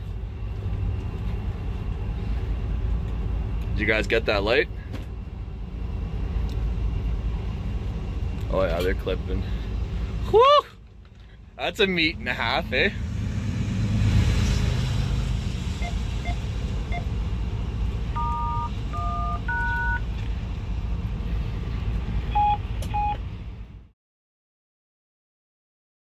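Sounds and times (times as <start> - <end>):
locomotive cab rumble: 0.0 - 13.2, 14.4 - 23.9
touch-tone dialing beeps: 18.2 - 20.0, 22.3 - 23.2.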